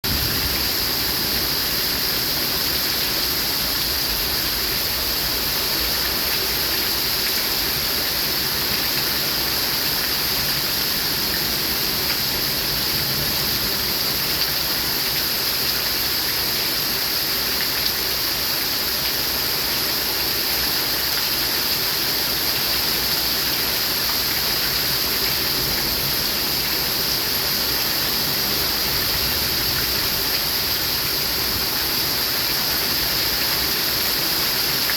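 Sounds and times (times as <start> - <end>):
rain falling: 0.0 - 34.9.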